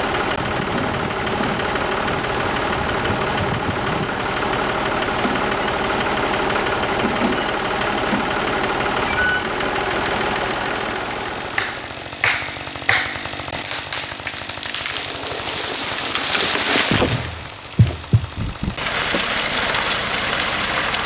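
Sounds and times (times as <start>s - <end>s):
tractor engine running: 0.0s - 21.0s
sharp knocks: 10.6s - 14.2s, 16.6s - 18.8s
hiss: 15.0s - 21.0s.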